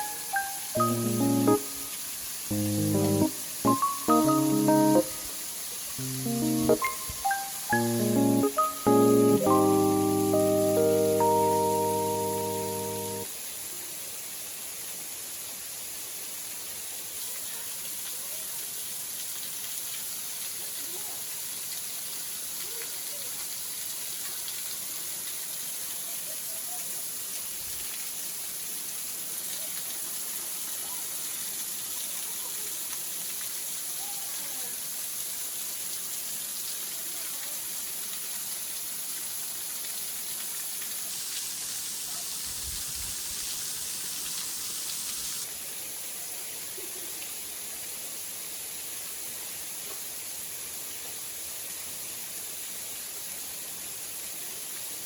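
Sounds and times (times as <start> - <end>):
waterfall rushing: 0.0 - 13.3.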